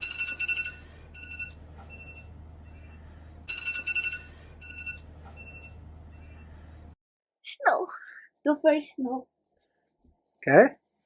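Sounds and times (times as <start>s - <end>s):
phone ringtone chime: 0.0s - 6.4s
steady low hum: 0.0s - 7.0s.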